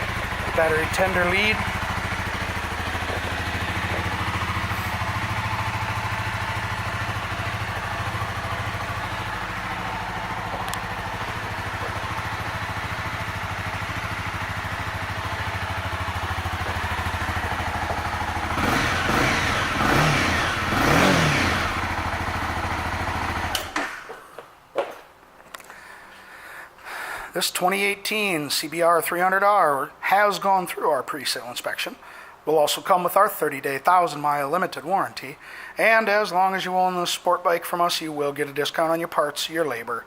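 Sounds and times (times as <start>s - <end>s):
motorcycle engine idling and revving: 0.0s - 24.2s.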